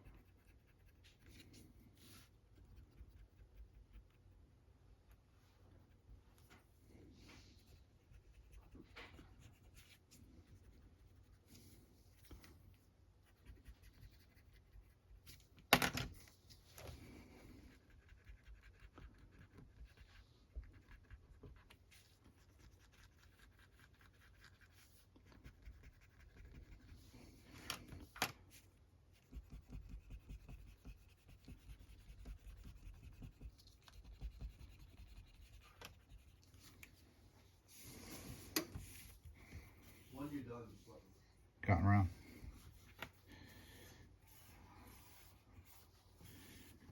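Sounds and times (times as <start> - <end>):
eraser rubbing on paper: 28.6 - 36.7, 44.2 - 46.9.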